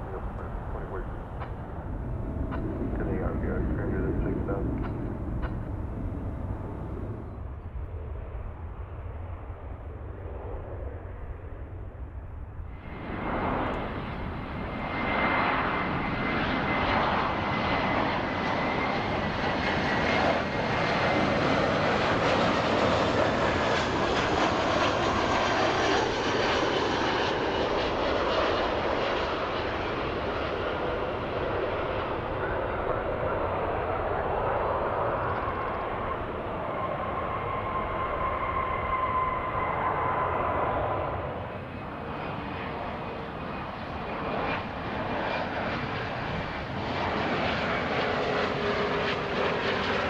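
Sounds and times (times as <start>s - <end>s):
aircraft engines roaring: 0.0s - 50.0s.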